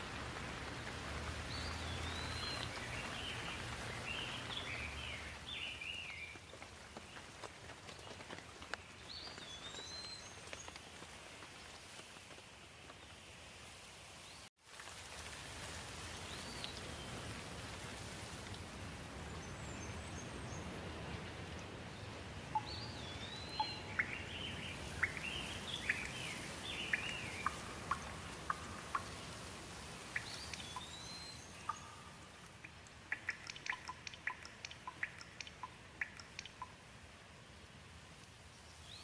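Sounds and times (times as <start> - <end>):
water drips ticking: 0.0 - 6.6, 22.4 - 37.0
steady rain falling: 0.0 - 39.0.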